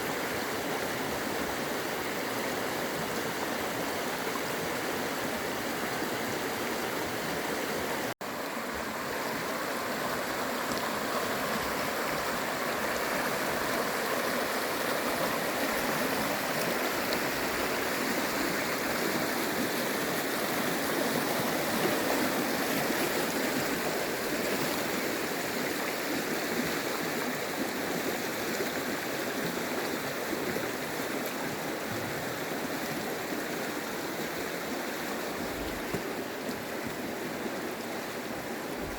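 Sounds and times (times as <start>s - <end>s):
mountain stream rushing: 0.0s - 38.9s.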